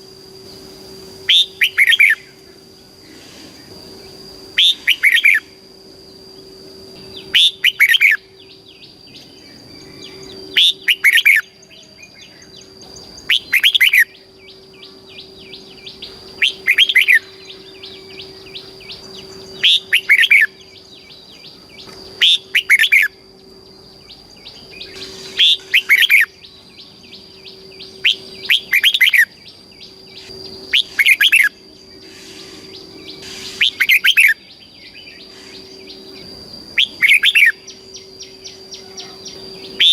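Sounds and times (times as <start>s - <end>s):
faint bird chirps: 0.0s - 39.9s
steady high whine: 0.0s - 39.9s.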